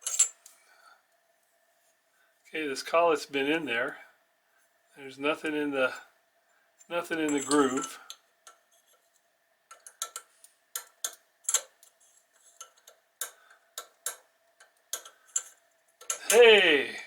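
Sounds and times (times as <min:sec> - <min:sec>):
faint steady hum: 0:00.0 - 0:17.0
light metallic clicks and taps: 0:09.7 - 0:16.4.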